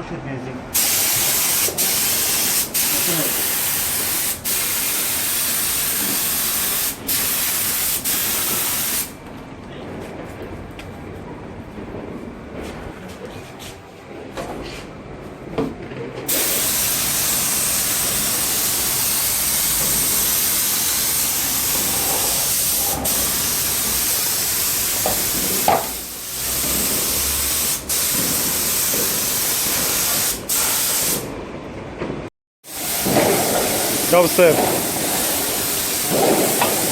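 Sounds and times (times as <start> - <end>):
hiss of rushing air or spray: 0.8 - 9.2, 16.3 - 31.3, 32.6 - 36.9.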